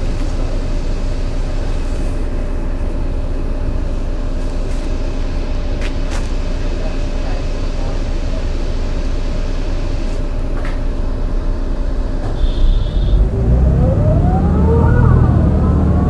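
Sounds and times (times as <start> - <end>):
bus engine rumbling: 0.0 - 16.0
gearbox whine: 10.4 - 16.0.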